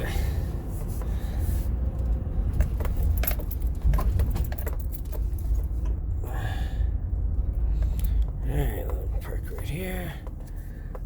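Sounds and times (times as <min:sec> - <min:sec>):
car engine and road rumble: 0:00.0 - 0:11.0
light clicks and rattles: 0:02.0 - 0:06.0.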